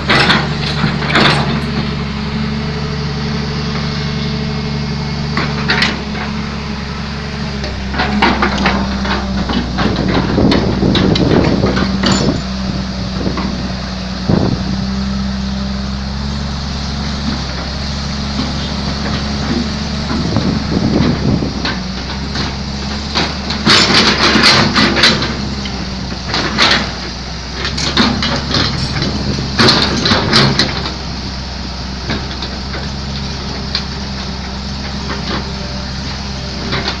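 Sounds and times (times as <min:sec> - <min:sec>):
knocks and clatter: 0:00.0 - 0:01.9, 0:07.6 - 0:12.6, 0:18.4 - 0:31.0
excavator diesel engine running: 0:00.0 - 0:37.0.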